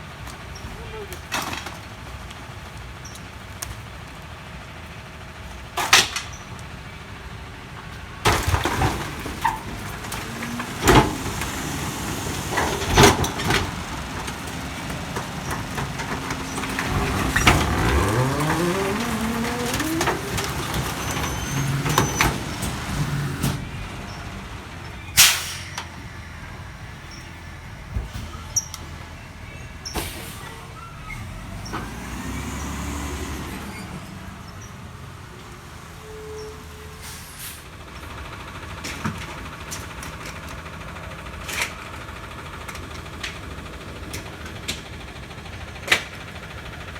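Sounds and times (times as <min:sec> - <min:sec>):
truck engine running: 0:00.0 - 0:35.3, 0:37.7 - 0:46.9
garbage truck bangs and crashes: 0:08.1 - 0:25.8.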